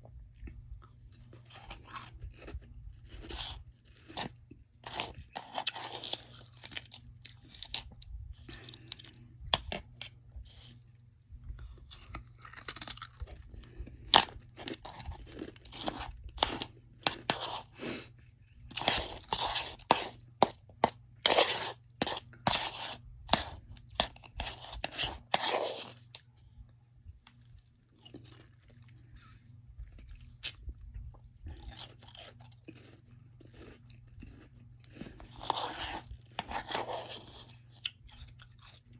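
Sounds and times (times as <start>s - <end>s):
chewing frost wet crunches: 0.4s - 22.4s, 29.8s - 38.9s.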